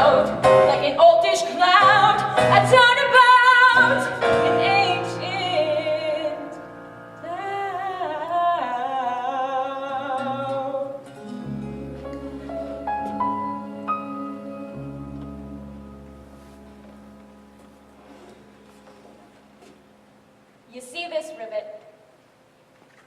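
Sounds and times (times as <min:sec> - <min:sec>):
person singing with vibrato: 0:00.0 - 0:06.6, 0:07.2 - 0:16.2
instrumental accompaniment: 0:11.0 - 0:20.7.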